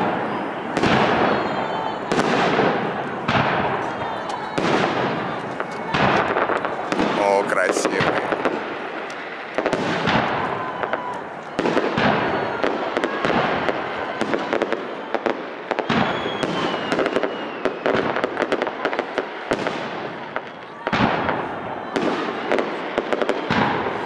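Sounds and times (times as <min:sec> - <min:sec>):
firework crackling: 0:00.0 - 0:24.0
faint firework whistles: 0:00.3 - 0:07.0, 0:09.0 - 0:24.0.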